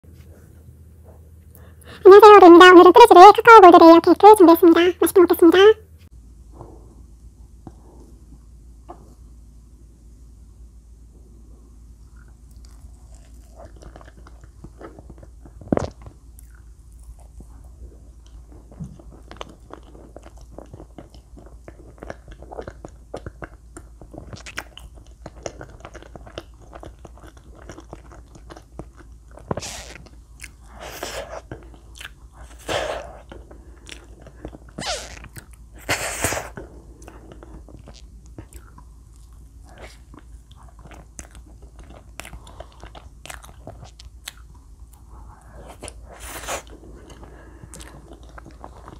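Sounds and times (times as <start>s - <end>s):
close chewing and mouth sounds: 12.0s - 48.9s
lip and tongue clicks: 18.2s - 45.1s.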